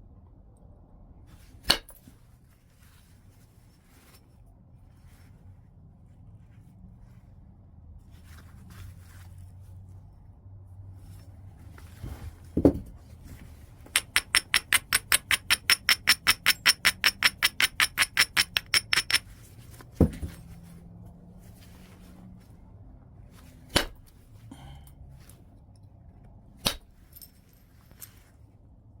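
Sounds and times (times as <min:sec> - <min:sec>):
dull knock on stone: 0:12.6 - 0:12.9.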